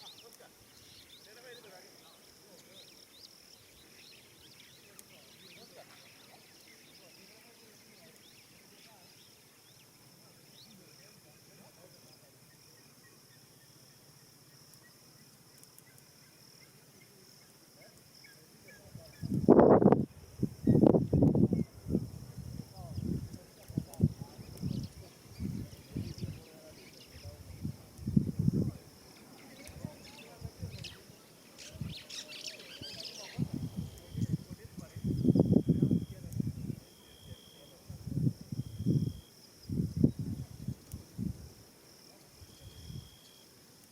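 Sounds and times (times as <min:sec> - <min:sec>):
faint chirps: 0:00.0 - 0:43.9
faint steady high tone: 0:29.4 - 0:37.9, 0:42.4 - 0:43.6.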